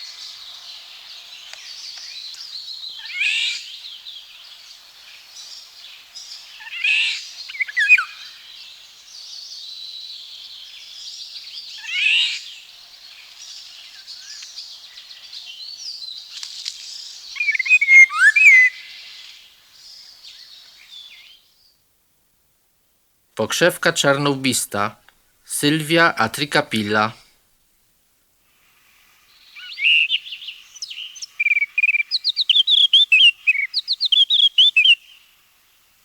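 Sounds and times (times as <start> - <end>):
woodland birds chorus: 29.3 - 35.2.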